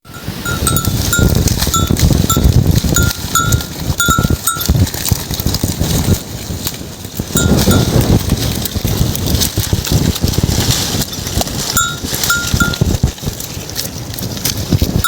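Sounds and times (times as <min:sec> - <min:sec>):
goat bell clanking: 0:00.1 - 0:05.1, 0:07.3 - 0:08.2, 0:11.7 - 0:13.0
animals rustling: 0:00.1 - 0:15.0.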